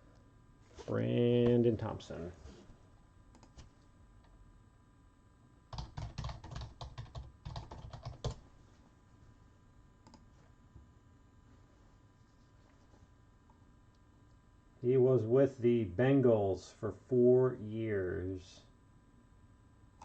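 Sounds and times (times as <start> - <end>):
typing on computer keyboard: 5.7 - 8.4.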